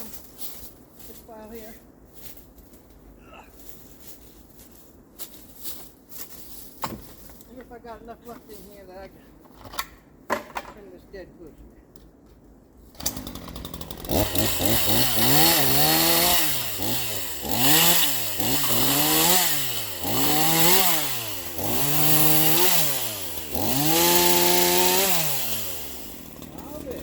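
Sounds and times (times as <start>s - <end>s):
chainsaw revving: 13.0s - 27.0s.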